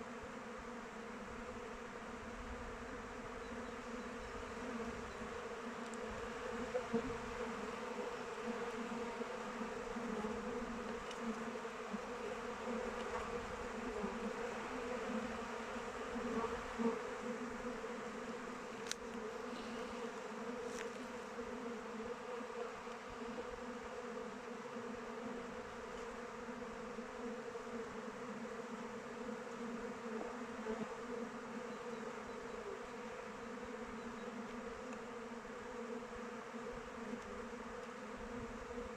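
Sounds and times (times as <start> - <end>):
bees buzzing: 0.1 - 38.9
faint ticks: 5.8 - 6.1, 10.8 - 11.5, 18.8 - 19.8, 34.8 - 35.1.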